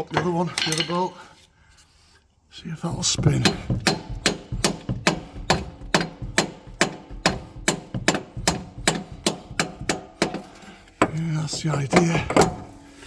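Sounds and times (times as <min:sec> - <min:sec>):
hammer knocking on metal: 0:02.9 - 0:12.7.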